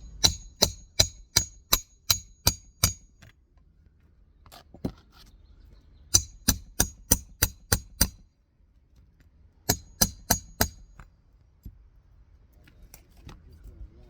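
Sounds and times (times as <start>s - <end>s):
hammer striking shingle roof: 0.0s - 3.2s, 6.2s - 8.2s, 9.7s - 10.8s.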